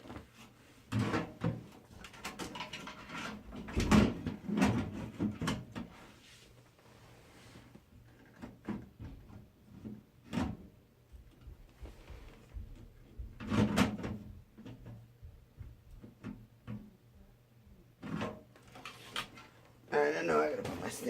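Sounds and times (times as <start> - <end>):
computer parts knocking and rattling: 0.9 - 5.8, 12.6 - 16.8.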